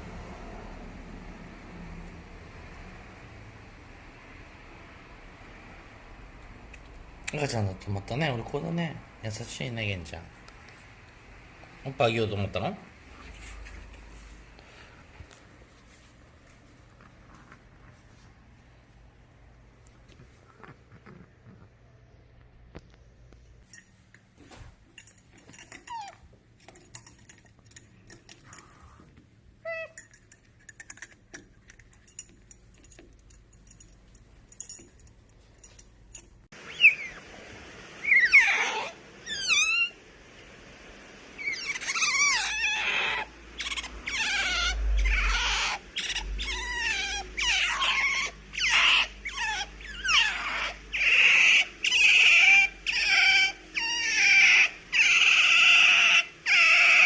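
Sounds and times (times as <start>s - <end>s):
small squeaks: 25.0s - 29.0s, 35.6s - 37.3s, 38.0s - 40.0s, 41.4s - 57.0s
otter chirping and squealing: 36.7s - 37.3s, 38.0s - 40.0s, 41.4s - 57.0s.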